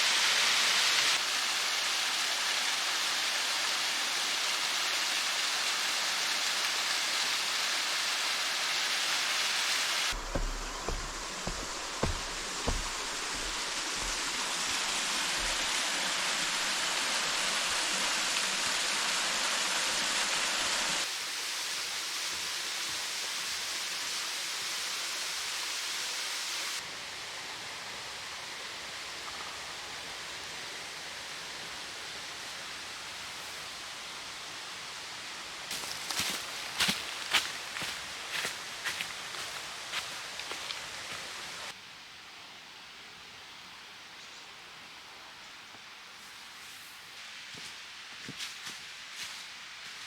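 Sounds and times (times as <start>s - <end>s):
water rushing in stream: 0.0s - 28.9s.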